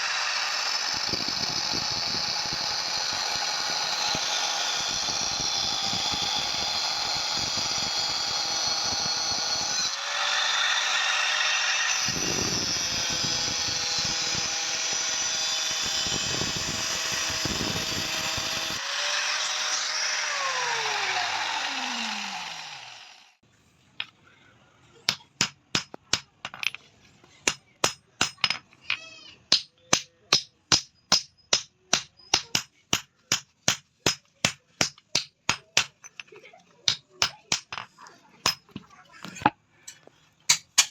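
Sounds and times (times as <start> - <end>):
spinning machine whirring: 0.0 - 23.4.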